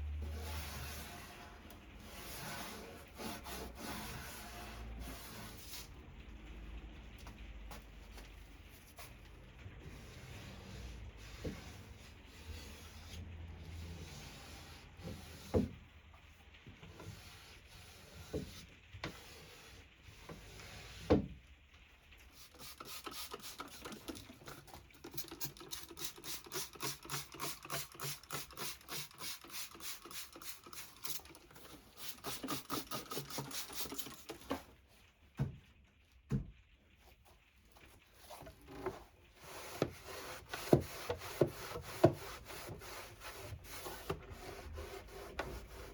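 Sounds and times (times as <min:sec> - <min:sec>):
strokes rubbing on wood: 0:00.2 - 0:05.9, 0:22.4 - 0:34.6, 0:38.2 - 0:45.9.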